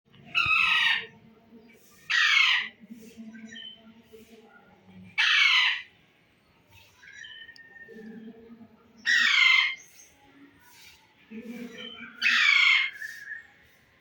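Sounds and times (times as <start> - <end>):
parrot screeching: 5.2 - 5.8, 12.2 - 13.0.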